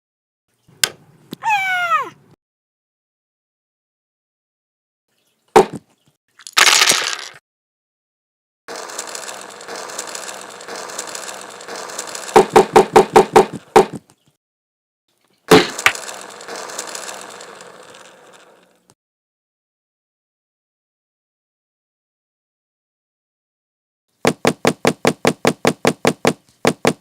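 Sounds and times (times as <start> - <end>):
machinery grinding and ratcheting: 8.7 - 13.0, 15.7 - 18.9.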